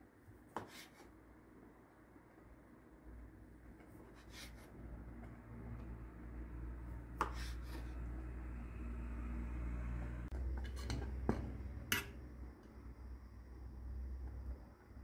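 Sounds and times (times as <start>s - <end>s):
kitchenware clinking and knocking: 10.5s - 12.2s.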